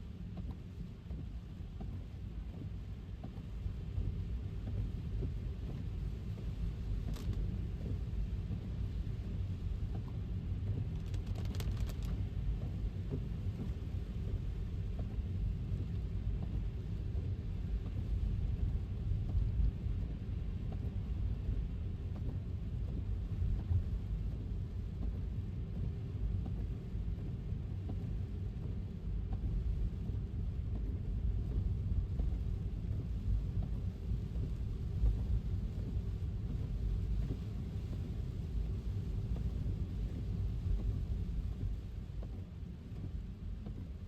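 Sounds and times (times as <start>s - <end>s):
car road rumble: 0.4s - 44.0s
faint clicks: 10.9s - 12.2s.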